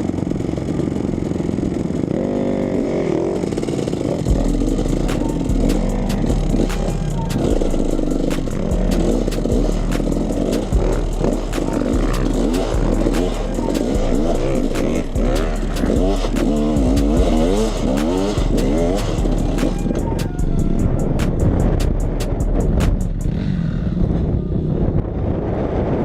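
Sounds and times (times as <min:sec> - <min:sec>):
dirt bike engine revving: 0:00.0 - 0:24.6
music: 0:04.3 - 0:23.3.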